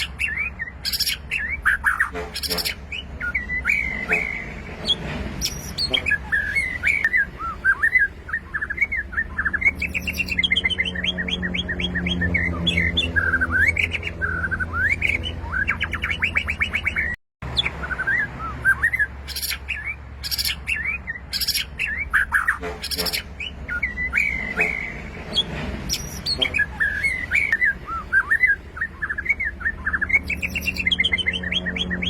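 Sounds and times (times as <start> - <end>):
songbird whistling and trilling: 0.0 - 32.0.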